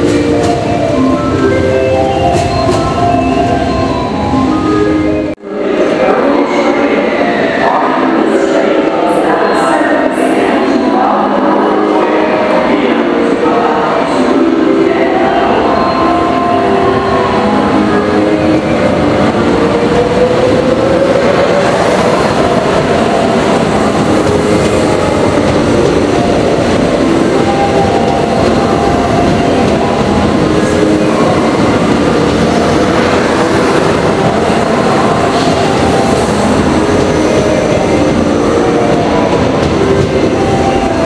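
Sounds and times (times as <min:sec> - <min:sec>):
wheels rumbling on rail: 0:00.0 - 0:05.4, 0:15.5 - 0:41.0.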